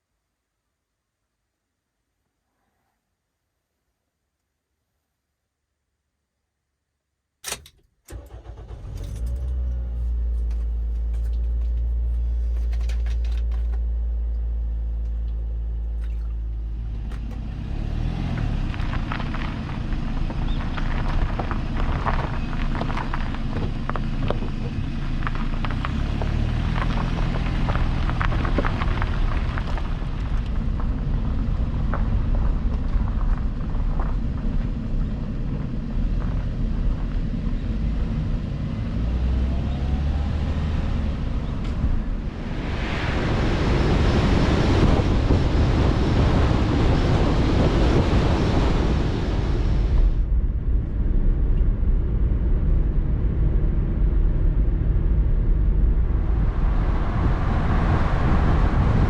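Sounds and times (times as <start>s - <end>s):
ignition clicks: 7.4s - 12.0s
car engine running: 7.5s - 59.0s.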